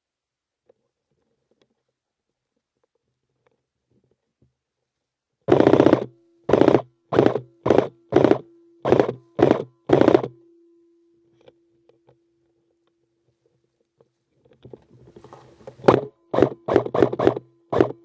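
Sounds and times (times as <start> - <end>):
airsoft rifle rapid-fire bursts: 5.5 - 10.3, 15.8 - 18.0.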